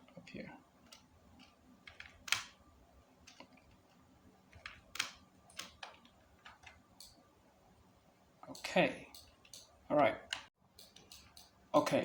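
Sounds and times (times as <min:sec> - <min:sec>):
keyboard and mouse clicks: 0:00.8 - 0:02.6, 0:03.2 - 0:07.2, 0:08.5 - 0:11.9.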